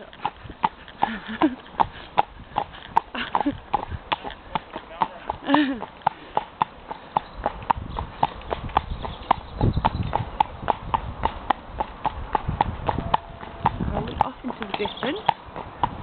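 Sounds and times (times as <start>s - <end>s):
horse hoofbeats clip-clopping: 0.0s - 16.0s
low rumble: 7.5s - 14.2s.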